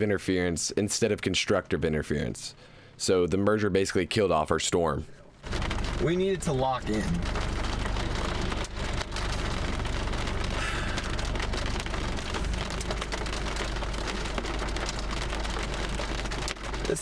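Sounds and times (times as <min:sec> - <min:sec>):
low steady hum: 0:05.0 - 0:16.9
rain hitting a vehicle: 0:05.4 - 0:17.0.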